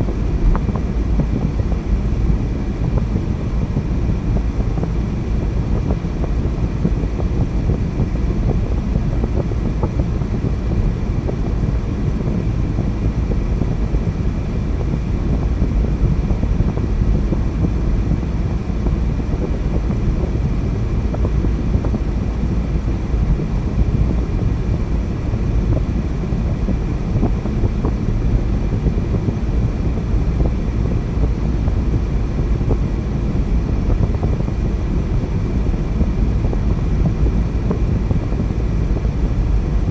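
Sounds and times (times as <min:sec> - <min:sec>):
car driving road noise: 0:00.0 - 0:10.3.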